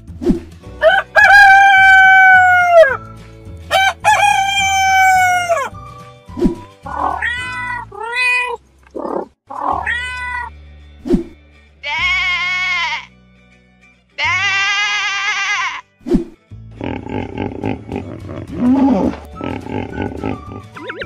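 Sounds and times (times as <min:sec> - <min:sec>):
rooster crowing: 0:00.8 - 0:03.0, 0:03.7 - 0:05.7
cat meowing: 0:06.9 - 0:08.6, 0:09.5 - 0:10.5
music with low beat: 0:17.5 - 0:21.0.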